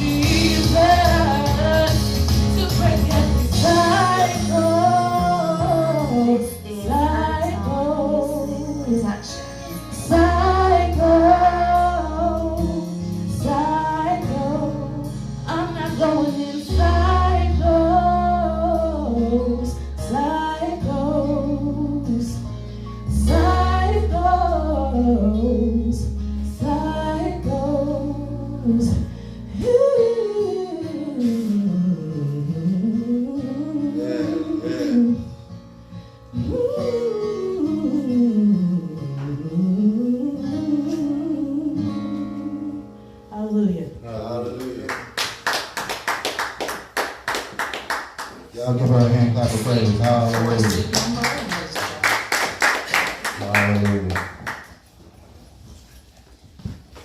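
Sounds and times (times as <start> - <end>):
woman singing gospel: 0.0 - 22.5, 23.1 - 35.3, 36.4 - 44.0.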